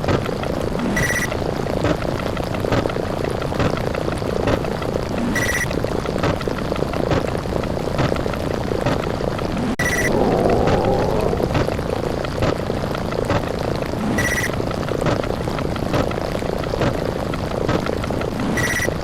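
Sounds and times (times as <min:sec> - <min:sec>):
crackling explosion rumble: 0:09.8 - 0:12.2.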